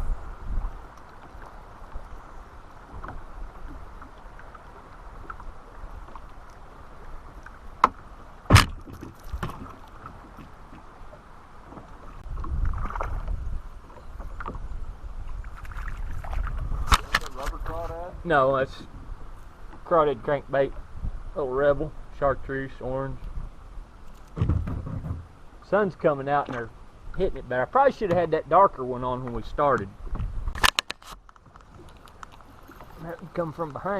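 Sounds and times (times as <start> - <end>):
water wash and handling noise: 2.8 - 14.7, 29.2 - 33.9
sharp knocks on kayak: 7.8 - 9.8, 24.3 - 25.3.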